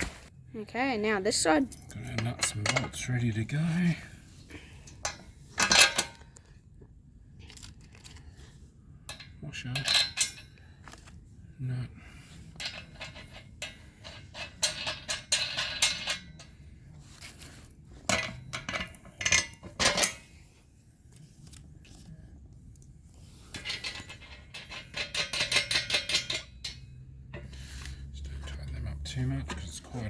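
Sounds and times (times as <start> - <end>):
metal nuts and bolts clinking: 1.5 - 3.2, 4.9 - 6.2, 9.1 - 11.2, 12.5 - 16.6, 17.4 - 20.4, 23.5 - 27.5.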